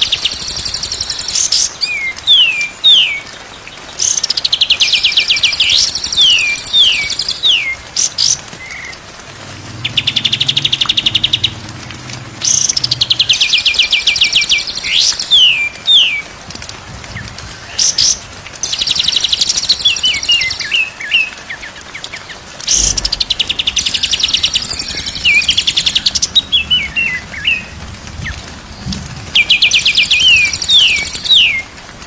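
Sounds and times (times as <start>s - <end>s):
bird song trills and whistles: 0.0s - 8.9s, 12.4s - 16.3s, 17.2s - 28.4s, 29.3s - 31.7s.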